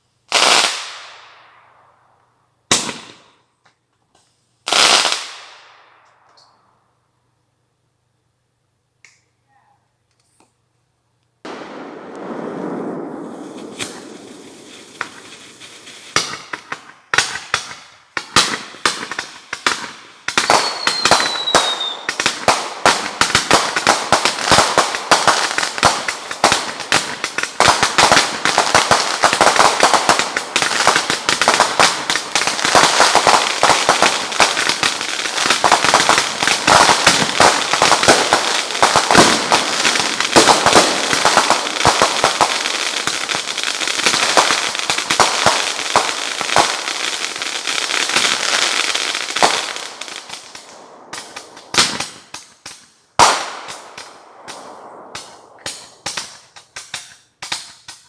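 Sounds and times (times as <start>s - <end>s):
fireworks crackle of rapid pops: 0.0s - 1.5s, 2.1s - 6.6s, 11.2s - 58.0s
fireworks bangs: 2.7s - 3.4s, 11.4s - 58.0s
falling whistle: 20.6s - 22.1s.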